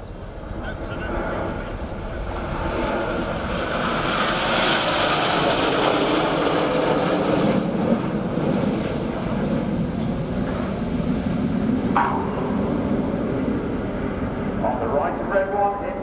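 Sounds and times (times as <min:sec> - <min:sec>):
jets flying past: 0:00.0 - 0:16.0.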